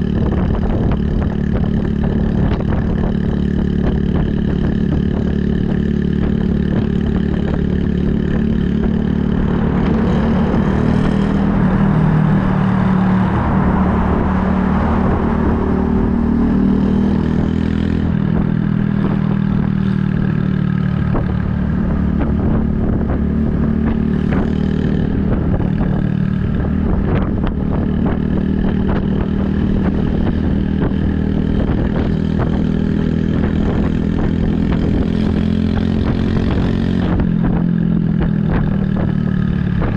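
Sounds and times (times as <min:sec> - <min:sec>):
motorcycle engine cruising: 0:00.0 - 0:39.9
rushing sound: 0:07.9 - 0:18.2.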